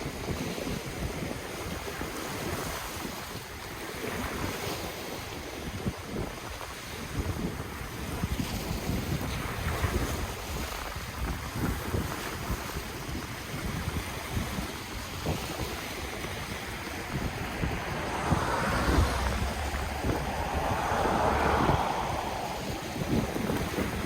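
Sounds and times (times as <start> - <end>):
wind buffeting microphone: 13.1 - 24.0
ocean waves washing in: 14.8 - 24.0.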